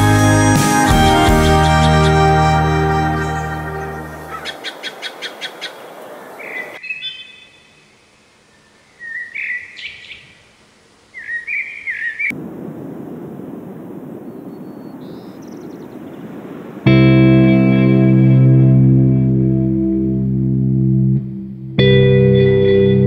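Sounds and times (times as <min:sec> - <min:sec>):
songbirds chirping: 0:00.9 - 0:12.4, 0:13.8 - 0:16.9.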